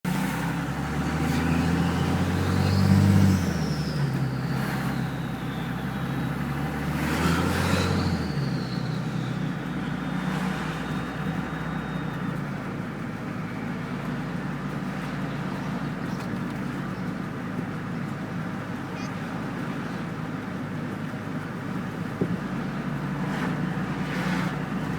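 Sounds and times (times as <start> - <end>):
diesel engine revving: 0.1 - 24.9
turbo whistle: 7.6 - 12.7.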